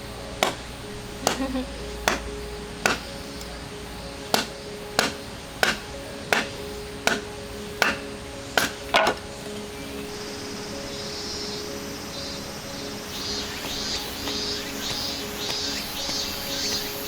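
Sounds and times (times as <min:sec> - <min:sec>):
background music: 0:00.0 - 0:17.0
sharp chopping strikes: 0:00.4 - 0:03.6, 0:04.3 - 0:08.0, 0:08.6 - 0:09.2, 0:14.2 - 0:16.8.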